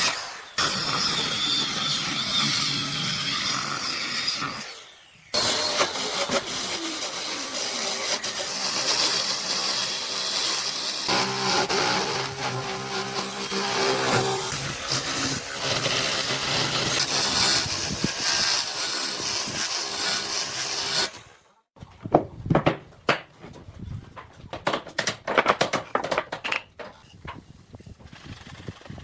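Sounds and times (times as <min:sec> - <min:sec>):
woodworking power tool running: 0:00.0 - 0:21.2.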